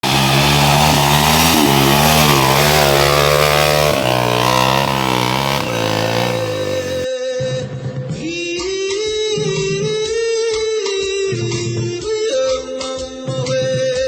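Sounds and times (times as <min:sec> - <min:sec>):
motorcycle engine revving: 0:00.0 - 0:07.1.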